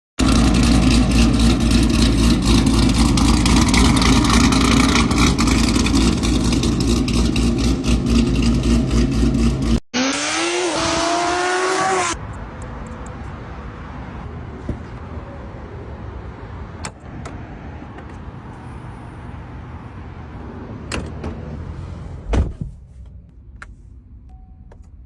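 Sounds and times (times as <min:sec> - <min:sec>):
sports car engine revving: 0:00.2 - 0:12.2.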